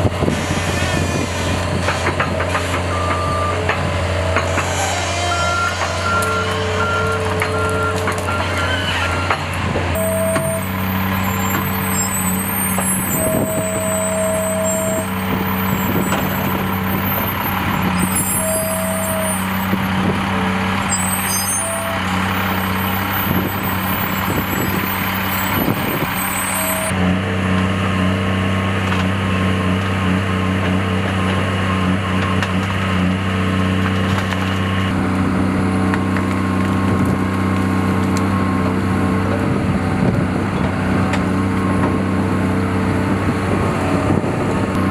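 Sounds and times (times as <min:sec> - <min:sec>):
beeps: 0:10.0 - 0:17.2
high squeaks: 0:10.0 - 0:20.0, 0:20.9 - 0:27.0.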